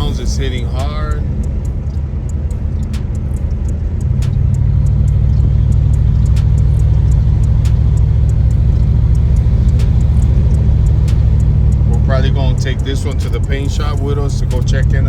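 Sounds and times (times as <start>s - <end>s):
car low rumble: 0.0s - 15.0s.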